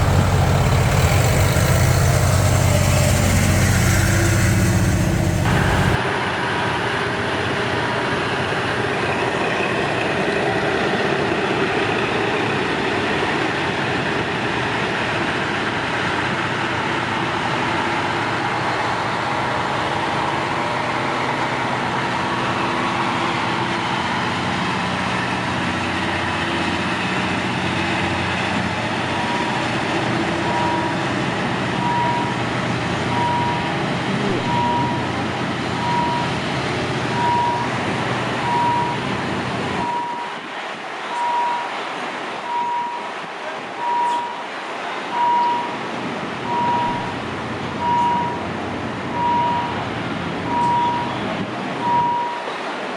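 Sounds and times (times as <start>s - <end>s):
vehicle noise: 0.0s - 7.7s, 15.8s - 52.9s
heavy engine running: 0.0s - 40.8s.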